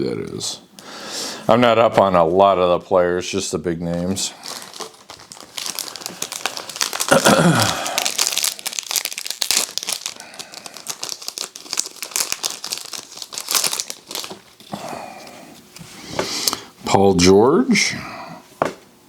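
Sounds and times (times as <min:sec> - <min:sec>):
foil wrapper crinkling: 0:04.0 - 0:14.8.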